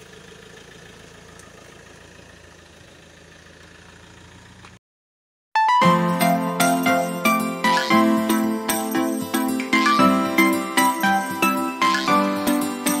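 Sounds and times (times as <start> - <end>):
car engine idling: 0.0 - 4.8.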